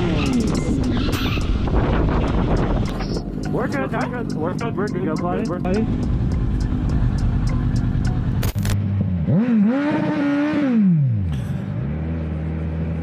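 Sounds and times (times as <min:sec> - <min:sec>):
vehicle engine running: 0:00.0 - 0:09.5
engine revving: 0:00.0 - 0:13.0
road noise: 0:00.0 - 0:13.0.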